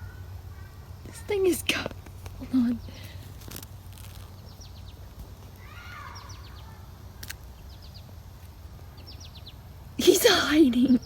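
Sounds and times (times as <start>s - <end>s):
outdoor background noise: 0.0s - 11.0s
bird chirping: 3.9s - 11.0s.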